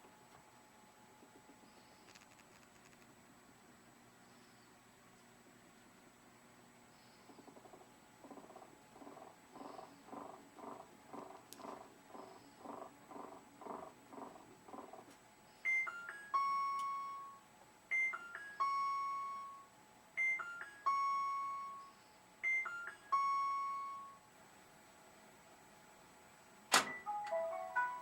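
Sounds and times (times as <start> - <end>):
washer beeping alert tune: 15.7 - 19.6, 20.2 - 21.8, 22.4 - 24.2, 26.8 - 28.0.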